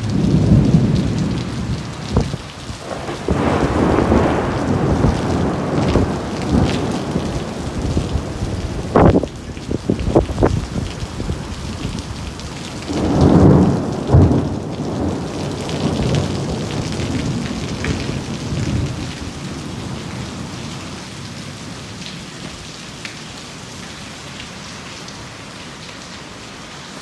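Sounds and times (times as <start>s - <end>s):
thunder crack: 0.0s - 11.4s, 12.8s - 20.4s
thunder rumble: 0.0s - 21.9s
rain falling: 0.0s - 27.0s.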